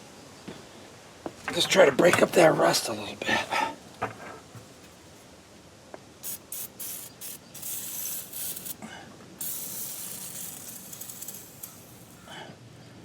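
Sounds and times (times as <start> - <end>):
aerosol can spraying: 6.2 - 8.8, 9.4 - 12.3.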